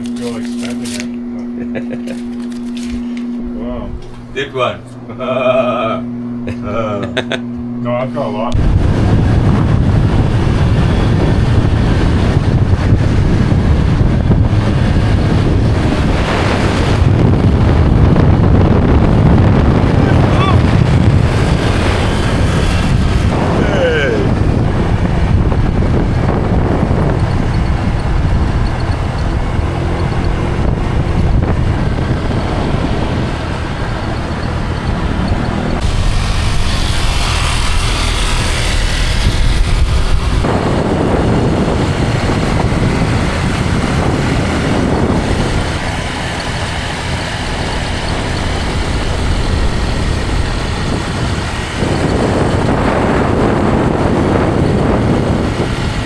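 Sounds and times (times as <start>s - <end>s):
motor scooter engines running: 0.0s - 4.2s, 8.6s - 56.0s
road noise: 0.0s - 56.0s.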